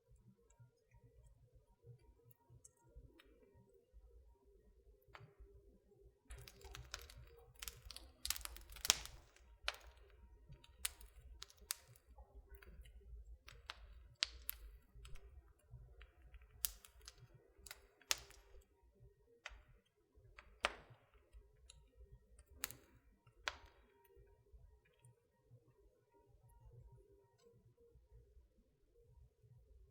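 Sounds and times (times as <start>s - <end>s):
wood fire crackling: 6.2s - 18.8s, 19.4s - 24.3s.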